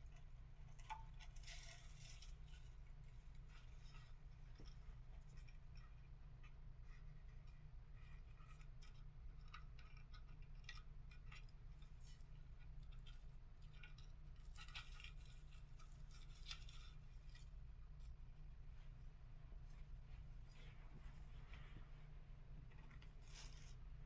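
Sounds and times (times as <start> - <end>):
steady low hum: 11.6 - 24.0.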